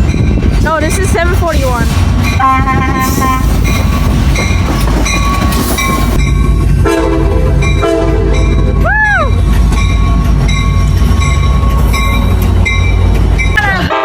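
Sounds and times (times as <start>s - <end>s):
train rumbling: 0.0s - 14.0s
locomotive air horn blasts: 2.4s - 3.5s, 6.8s - 8.4s, 13.8s - 14.0s.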